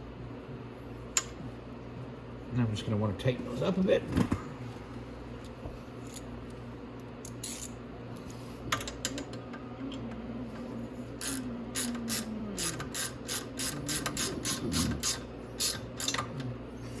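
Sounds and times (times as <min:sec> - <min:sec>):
ratchet wrench clicking: 0:07.2 - 0:07.7, 0:11.2 - 0:16.3.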